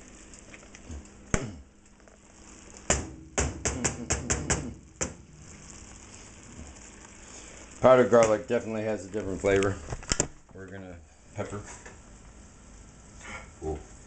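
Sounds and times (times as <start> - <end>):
taps at the stove: 2.9 - 5.2.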